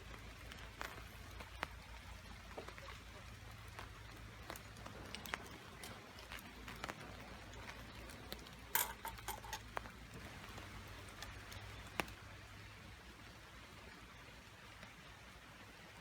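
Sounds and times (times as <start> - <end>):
cookware clicks and taps: 8.8 - 9.7.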